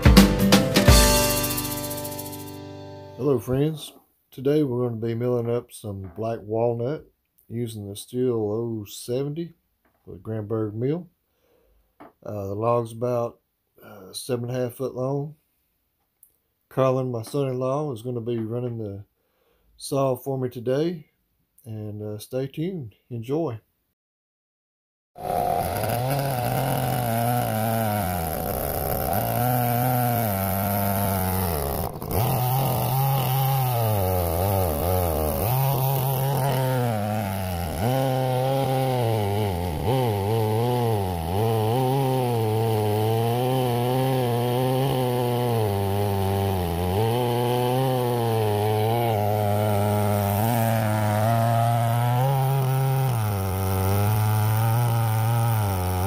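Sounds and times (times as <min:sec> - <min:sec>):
chainsaw cutting log: 0:00.0 - 0:03.9, 0:25.2 - 0:56.0.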